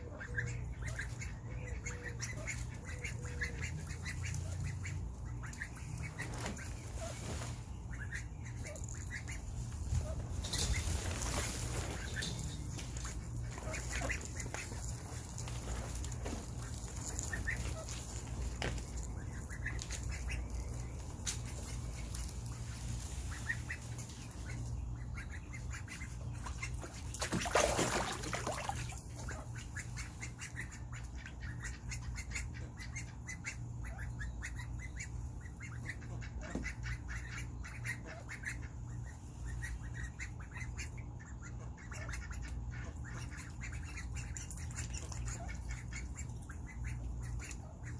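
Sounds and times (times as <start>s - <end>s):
ducks calling softly: 0.0s - 47.9s
small water splashes: 26.8s - 29.4s.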